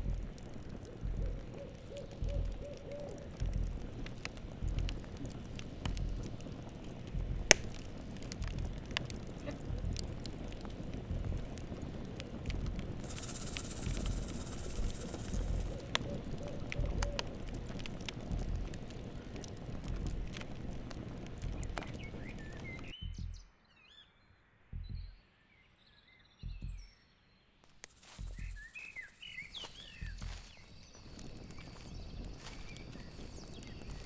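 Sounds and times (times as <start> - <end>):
campfire crackling: 0.0 - 22.9, 27.7 - 34.0
sharp fire pops: 0.0 - 22.9, 27.8 - 34.0
high hiss: 12.9 - 17.6, 27.8 - 33.5.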